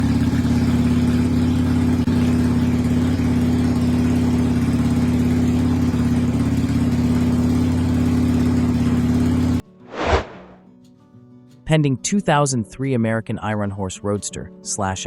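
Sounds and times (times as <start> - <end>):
motorcycle engine idling: 0.0 - 9.6.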